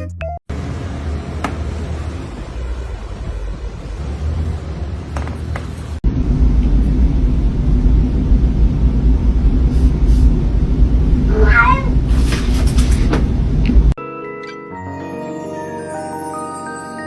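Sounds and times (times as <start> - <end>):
low steady rumble: 0.5 - 14.0
steady hum: 6.0 - 14.0.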